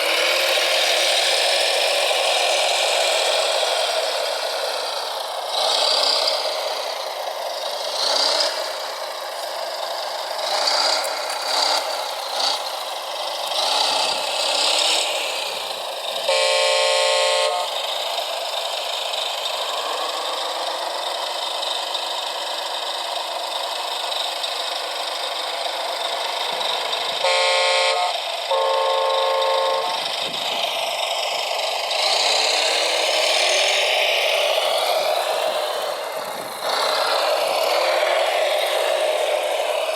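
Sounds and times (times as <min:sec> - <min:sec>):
toy truck horn blasts: 0:16.2 - 0:18.0, 0:27.1 - 0:30.4
electric motors whining: 0:16.3 - 0:17.8, 0:27.2 - 0:30.6.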